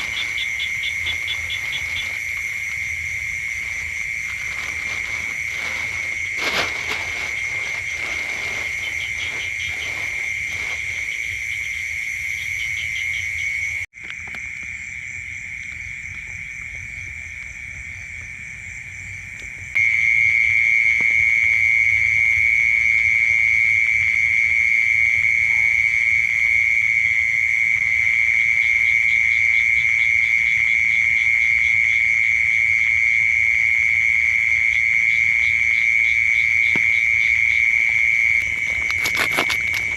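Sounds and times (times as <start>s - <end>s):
frogs and insects trilling: 0.0s - 39.9s.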